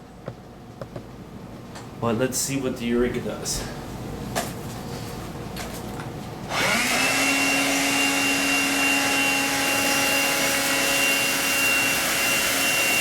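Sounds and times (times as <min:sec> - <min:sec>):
cordless vacuum motor whining: 0:06.5 - 0:13.0.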